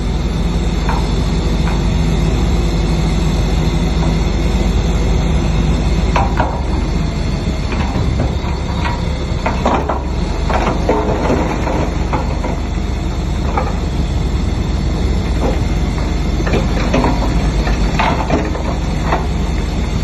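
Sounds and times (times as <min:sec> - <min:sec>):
diesel machinery rumbling: 0:00.0 - 0:20.0
metallic clanks: 0:00.4 - 0:14.1.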